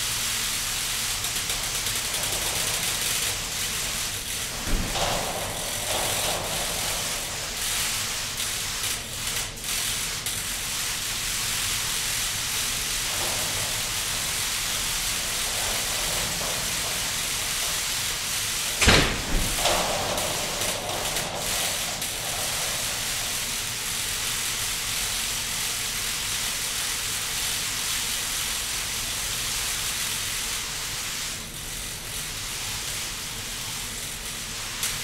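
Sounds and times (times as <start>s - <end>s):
thump: 4.6s - 7.4s, 18.7s - 23.1s.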